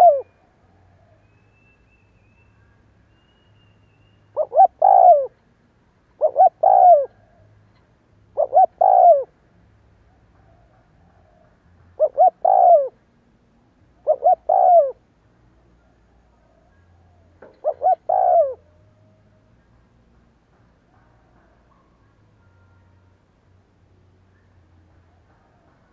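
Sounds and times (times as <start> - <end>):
dove cooing: 0.0 - 1.1, 4.4 - 5.4, 6.2 - 7.5, 8.4 - 9.4, 10.4 - 13.0, 14.0 - 15.0, 16.5 - 19.2.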